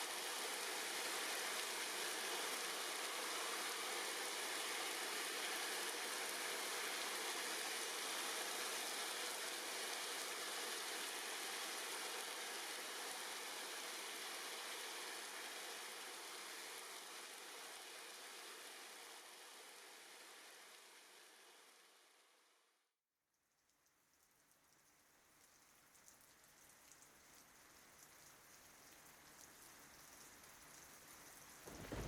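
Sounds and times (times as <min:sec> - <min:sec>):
rain on tree leaves: 0:00.0 - 0:21.0, 0:23.6 - 0:32.0.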